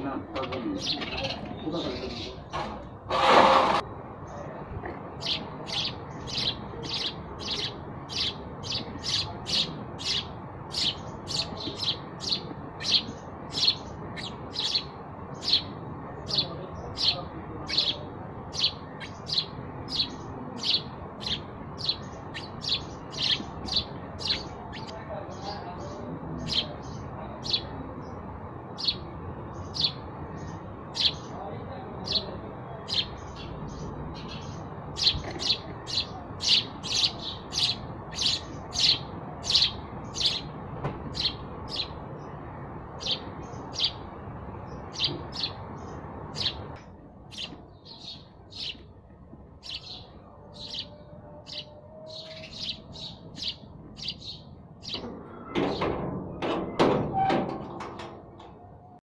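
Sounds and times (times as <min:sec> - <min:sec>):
sparrows chirping: 0:00.0 - 0:59.0
noisy clatter: 0:54.9 - 0:58.6.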